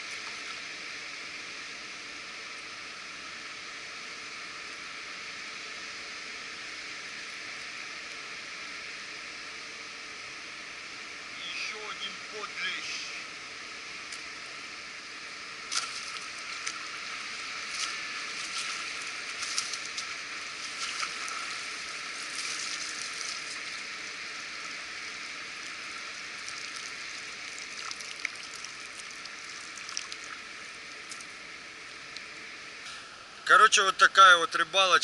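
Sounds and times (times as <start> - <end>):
water rushing over a weir: 15.7 - 24.9, 25.6 - 31.4.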